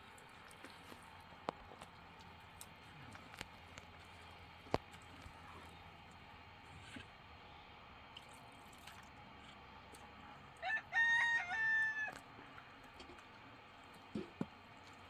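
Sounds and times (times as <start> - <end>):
rooster crowing: 10.6 - 12.2.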